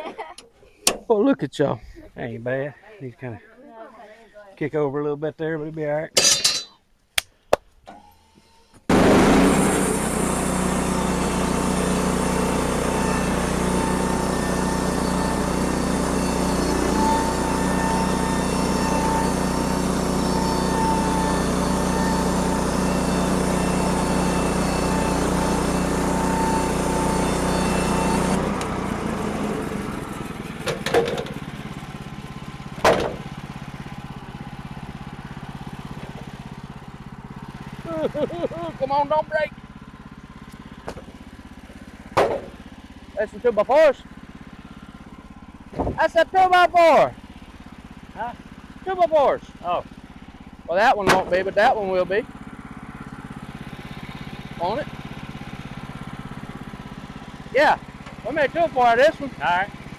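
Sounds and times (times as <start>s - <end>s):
sawmill engine and blade running: 8.0s - 59.9s
sharp knocks: 32.8s - 33.3s, 42.2s - 42.6s, 51.0s - 51.5s.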